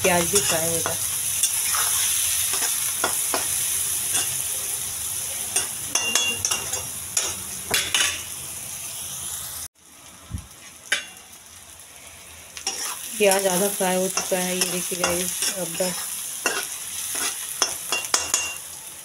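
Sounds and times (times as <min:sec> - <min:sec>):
onions and eggs sizzling in oil: 0:00.0 - 0:19.0
metal spatula scraping pan: 0:00.4 - 0:03.5, 0:12.6 - 0:13.5, 0:14.2 - 0:18.6.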